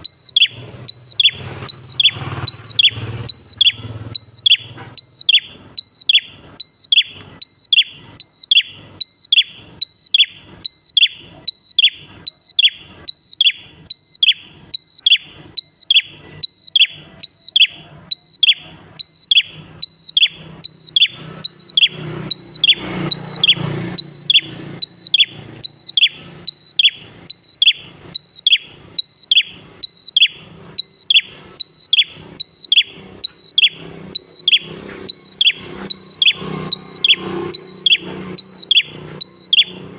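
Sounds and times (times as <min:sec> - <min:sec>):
songbird whistled calls: 0:00.0 - 0:39.9.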